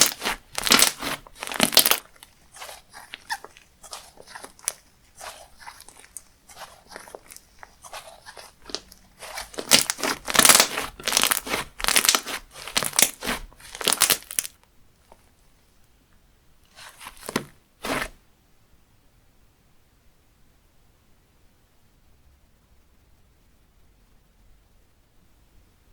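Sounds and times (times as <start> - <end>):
slime crackling pops: 0.0 - 14.5.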